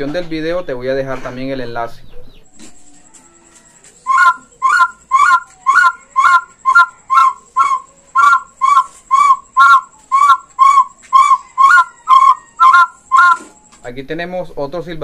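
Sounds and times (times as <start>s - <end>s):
clay whistle blasts: 4.1s - 13.6s.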